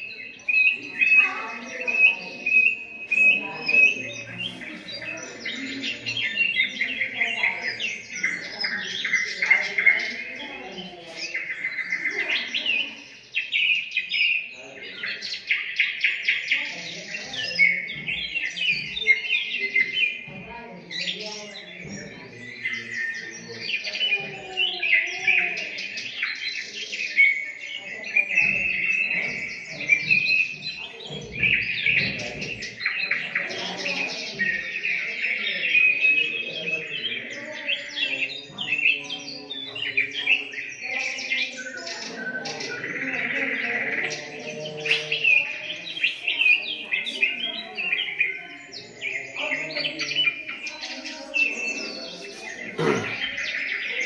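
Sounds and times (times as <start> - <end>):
parrot chirping and chattering: 43.2 - 49.3, 50.2 - 54.0.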